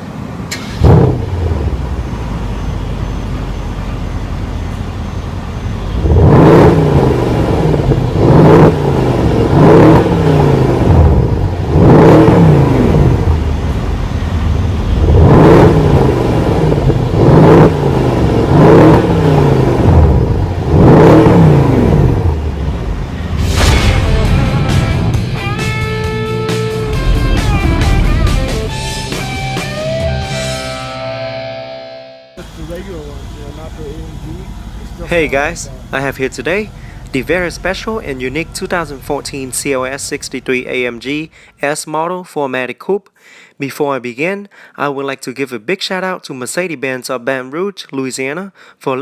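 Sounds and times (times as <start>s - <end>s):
car engine starting and revving: 0.2s - 31.6s, 32.4s - 41.2s.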